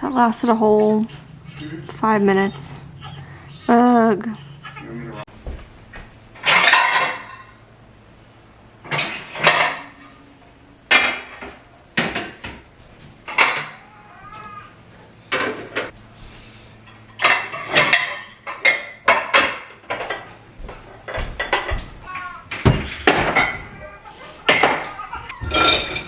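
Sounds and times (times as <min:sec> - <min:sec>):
dishes and cutlery clattering: 0:06.4 - 0:07.6, 0:08.8 - 0:10.2, 0:10.9 - 0:12.6, 0:13.2 - 0:14.5, 0:15.3 - 0:16.0, 0:16.8 - 0:20.4, 0:21.0 - 0:26.0.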